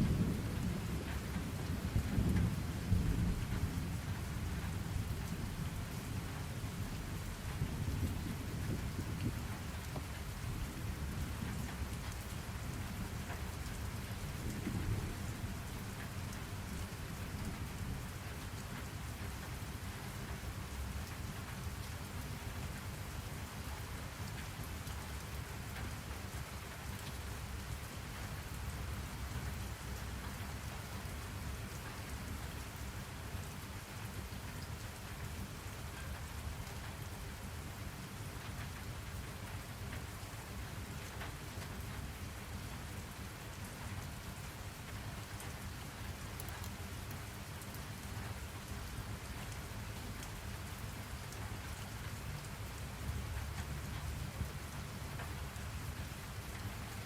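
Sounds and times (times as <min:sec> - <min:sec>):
distant thunder rumble: 0:00.0 - 0:06.0, 0:14.3 - 0:15.9
rain hiss: 0:00.0 - 0:57.0
raindrops ticking: 0:00.1 - 0:21.9, 0:34.2 - 0:57.0.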